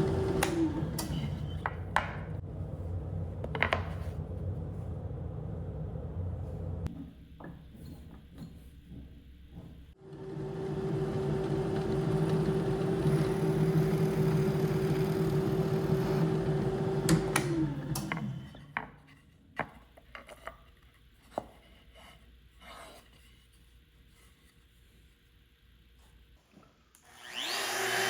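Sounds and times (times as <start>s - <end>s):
power tool motor running: 0.0s - 1.7s, 10.0s - 18.6s, 27.0s - 28.0s.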